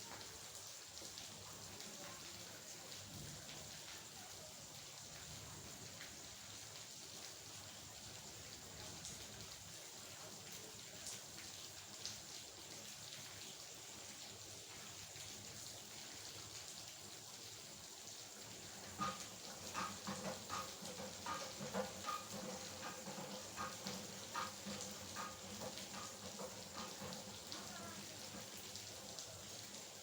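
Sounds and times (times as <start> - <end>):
steady rain falling: 0.0 - 30.0
water drips tapping with ringing: 18.6 - 28.7.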